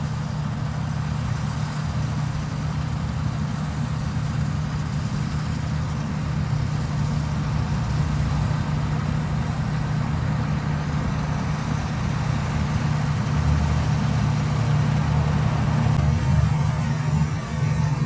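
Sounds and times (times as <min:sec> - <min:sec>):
diesel engine droning: 0:00.0 - 0:18.0.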